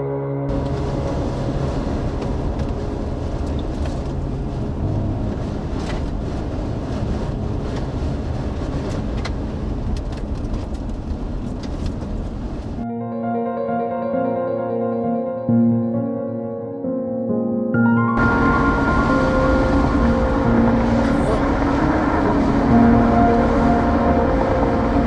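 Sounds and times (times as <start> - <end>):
background music: 0.0 - 6.4, 12.8 - 25.0
car road and wind noise: 0.4 - 12.8, 18.2 - 25.0.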